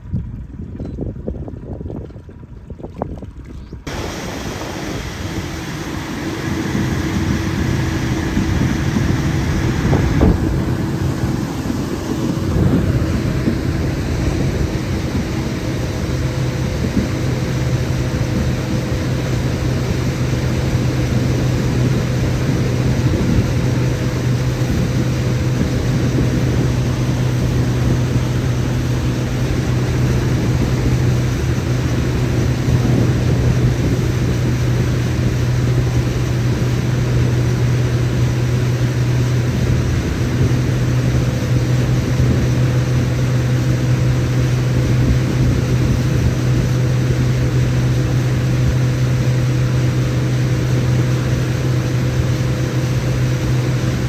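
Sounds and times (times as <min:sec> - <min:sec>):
rushing noise: 0:03.9 - 0:37.9
boat motor humming: 0:03.9 - 0:54.0.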